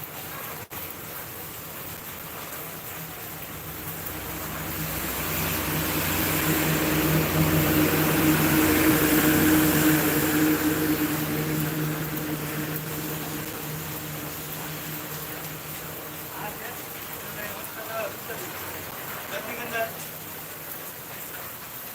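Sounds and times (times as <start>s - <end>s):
constant hiss: 0.0s - 21.9s
tractor engine humming: 3.1s - 16.7s.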